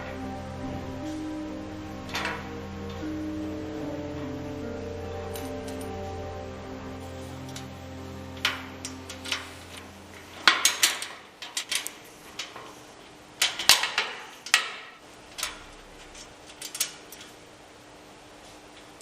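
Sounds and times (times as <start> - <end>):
background music: 0.0 - 11.2.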